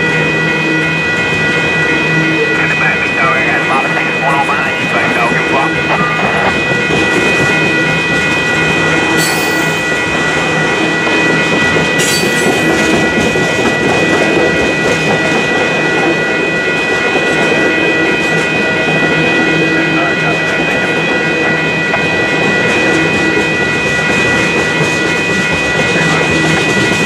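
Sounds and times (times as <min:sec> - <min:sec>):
crossing bells ringing: 0:00.0 - 0:27.0
train wheels clattering on track: 0:06.4 - 0:16.1.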